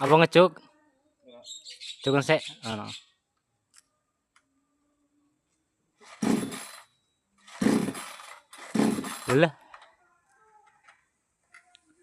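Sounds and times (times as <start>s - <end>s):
chainsaw engine cranking: 6.0s - 9.8s
chainsaw starter cord pulls: 6.0s - 9.8s.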